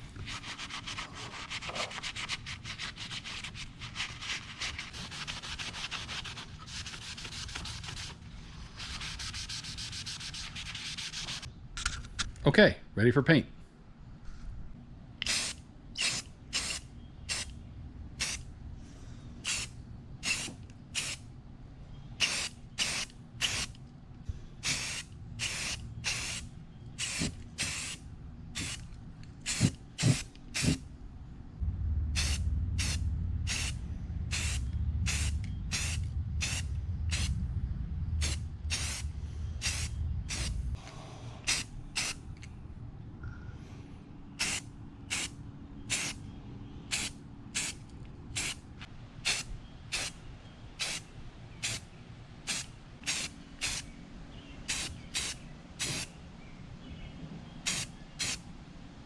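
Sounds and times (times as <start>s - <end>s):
spray paint hissing bursts: 15.2s - 17.5s, 18.2s - 18.4s, 19.4s - 21.2s, 22.2s - 23.8s, 24.6s - 28.8s, 29.4s - 30.8s, 32.2s - 37.4s, 38.2s - 40.7s, 41.5s - 42.2s, 44.4s - 45.3s, 45.9s - 46.2s, 46.9s - 47.8s, 48.4s - 48.6s, 49.2s - 50.2s, 50.8s - 51.0s, 51.6s - 51.8s, 52.5s - 53.9s, 54.6s - 56.1s, 57.7s - 58.4s
low rumble: 17.0s - 20.2s, 30.8s - 46.8s.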